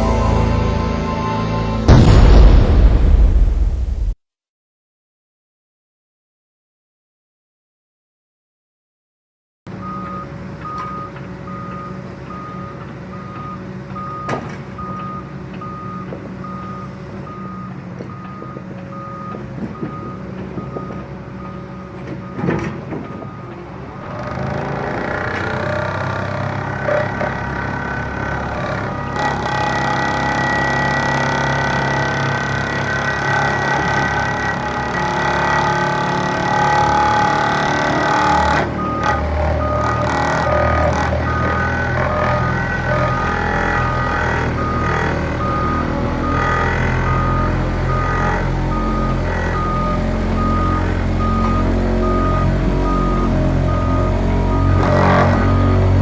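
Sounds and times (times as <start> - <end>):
excavator engine running: 9.7 - 56.0
alarm beeping: 38.1 - 41.8, 43.1 - 56.0.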